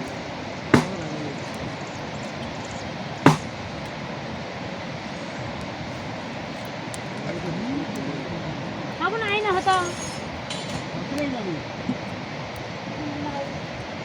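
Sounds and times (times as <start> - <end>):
rain hissing: 0.0 - 14.0
sharp knock: 0.7 - 1.3, 3.2 - 3.6.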